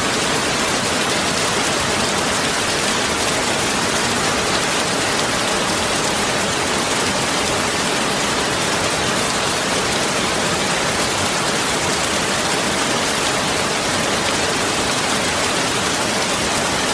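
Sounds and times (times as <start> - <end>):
heavy rain falling: 0.0 - 16.9.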